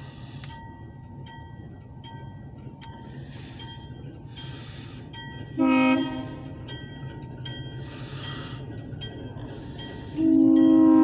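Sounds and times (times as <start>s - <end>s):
diesel train engine rumble: 0.0s - 11.0s
crossing bell ringing: 0.5s - 11.0s.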